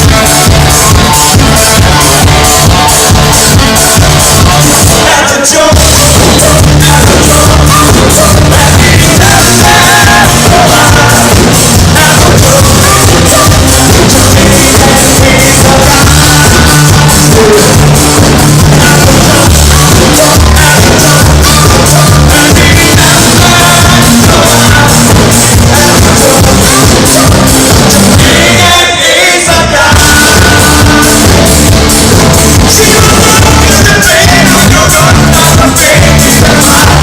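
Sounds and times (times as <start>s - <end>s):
loud electronic dance music: 0.0s - 37.0s
person singing: 0.0s - 37.0s.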